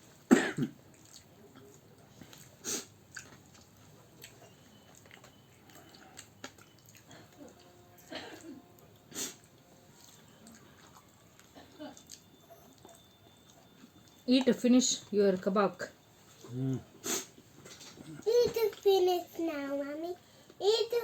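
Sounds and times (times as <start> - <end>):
person chewing food: 0.9 - 8.1, 9.0 - 14.2.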